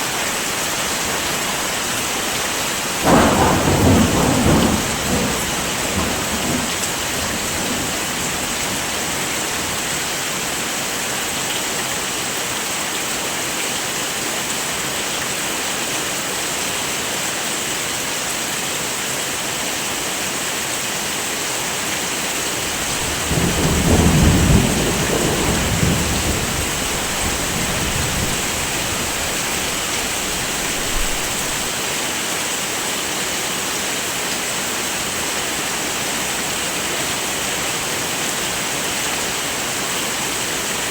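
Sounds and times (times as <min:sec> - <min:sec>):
heavy rain hissing: 0:00.0 - 0:18.7, 0:19.3 - 0:40.9
thunder rumbling: 0:03.0 - 0:09.8, 0:22.4 - 0:31.8.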